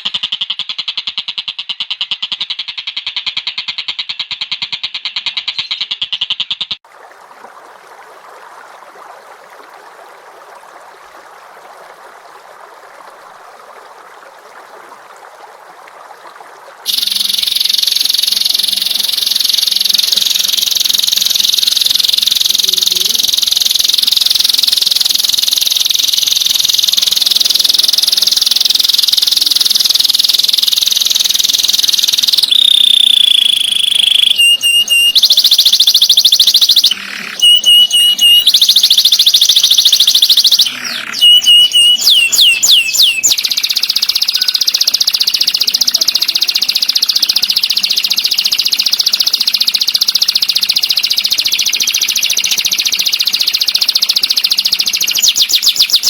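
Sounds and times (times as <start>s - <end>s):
songbird whistled notes: 16.9s - 22.5s, 31.7s - 56.0s
songbird buzzing trill: 16.9s - 56.0s.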